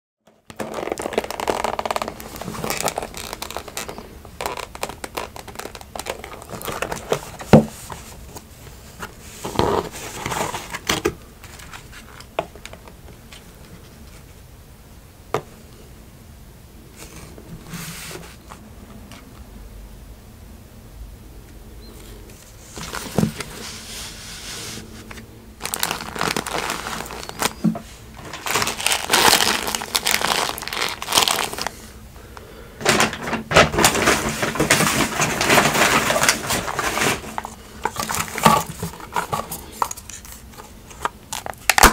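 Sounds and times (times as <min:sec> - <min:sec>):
paper food wrapping crinkling: 0:00.3 - 0:12.9, 0:22.4 - 0:32.0, 0:32.8 - 0:41.9.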